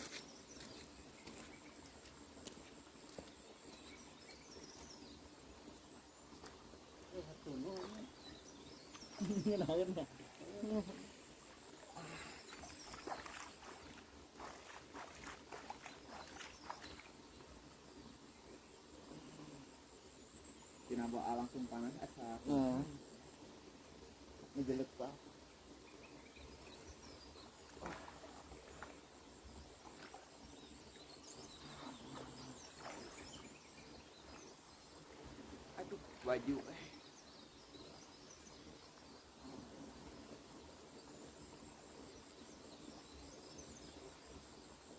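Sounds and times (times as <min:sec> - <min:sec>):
water sloshing and splashing: 0:11.4 - 0:17.2, 0:27.6 - 0:30.7, 0:31.6 - 0:33.6
faint high bird chirps: 0:12.0 - 0:17.1.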